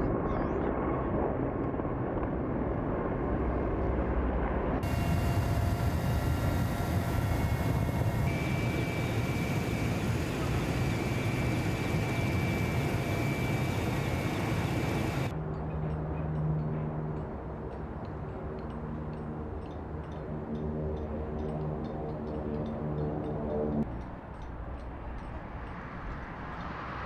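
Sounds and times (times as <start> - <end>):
jet aircraft flying over: 2.8 - 15.3
faint steady whine: 4.8 - 15.3.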